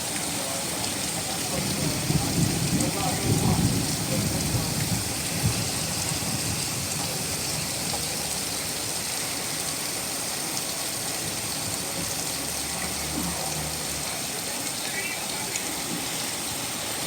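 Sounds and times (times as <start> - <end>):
rainfall hissing: 0.0 - 17.0
thunder rumbling: 1.0 - 8.6.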